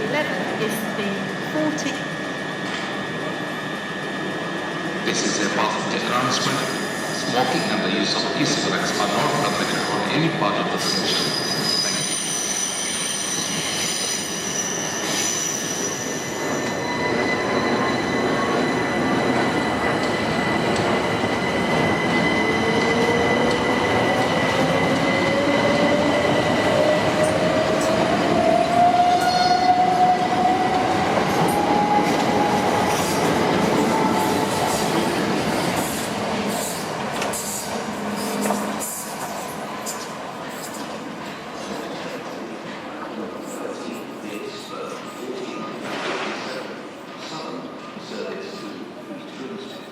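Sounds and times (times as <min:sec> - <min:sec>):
train wheels squealing: 0:04.8 - 0:42.1.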